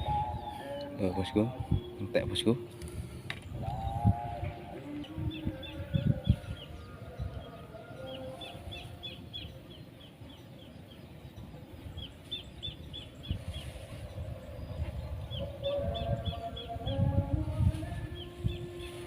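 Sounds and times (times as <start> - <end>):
low wind rumble: 0.0 - 19.0
bird chirping: 4.8 - 17.2.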